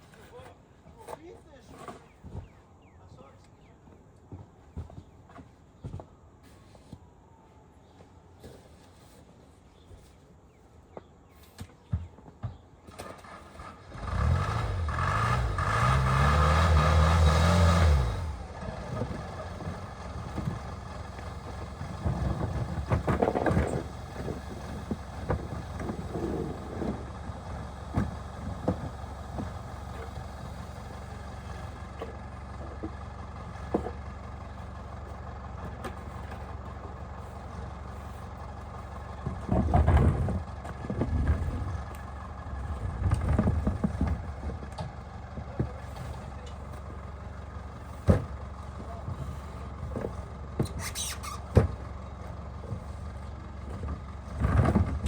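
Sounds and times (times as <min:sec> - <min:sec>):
engine revving and running: 0:13.0 - 0:32.1
knocks and clatter: 0:18.8 - 0:30.2, 0:39.2 - 0:42.0, 0:42.7 - 0:46.9.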